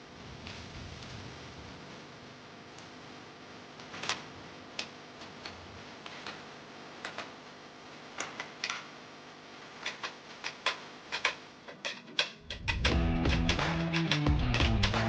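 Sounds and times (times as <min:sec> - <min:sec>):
music with bass and guitar: 0:12.5 - 0:15.0.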